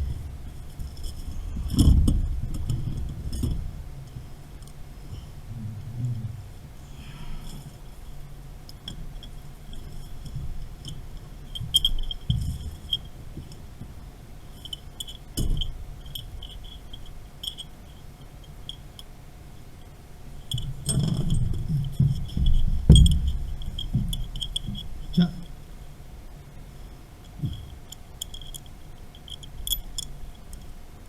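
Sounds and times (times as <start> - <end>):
dull knocks: 21.0 - 24.2.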